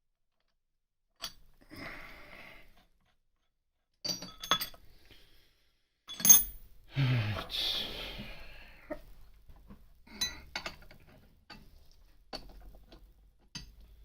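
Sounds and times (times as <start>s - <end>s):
metal objects clinking: 4.0s - 4.8s, 6.1s - 6.6s.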